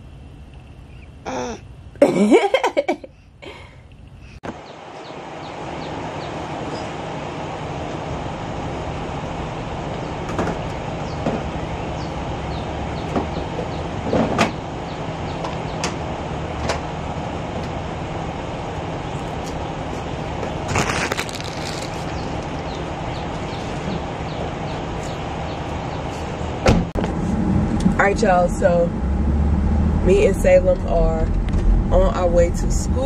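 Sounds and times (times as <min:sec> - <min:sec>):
rustling scrape: 0:20.6 - 0:22.6.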